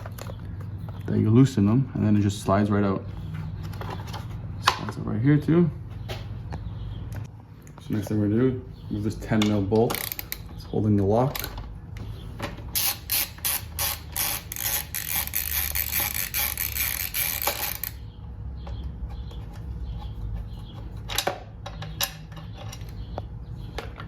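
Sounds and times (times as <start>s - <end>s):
ratchet wrench clicking: 12.8s - 18.0s.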